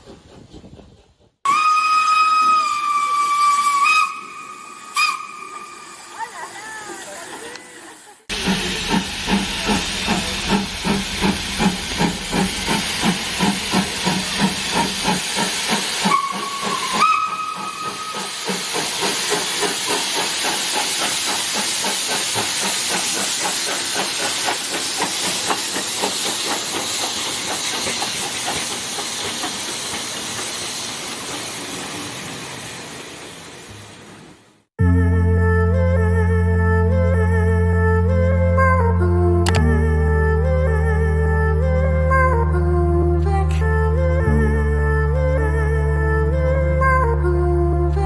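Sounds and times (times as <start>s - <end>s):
steam locomotive chuffing: 0.0s - 32.7s
train whistle blast: 1.5s - 6.4s, 16.0s - 18.5s
steam hissing: 1.5s - 33.9s.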